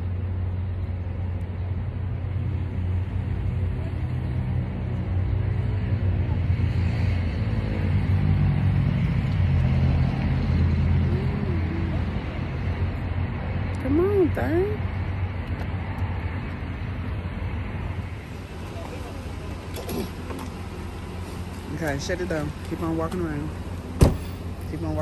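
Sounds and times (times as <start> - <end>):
vehicle engine idling: 10.4 - 25.0.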